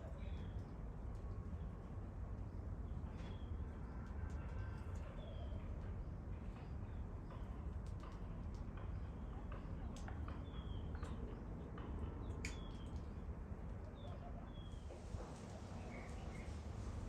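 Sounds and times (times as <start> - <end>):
small birds chirping: 5.1 - 16.8.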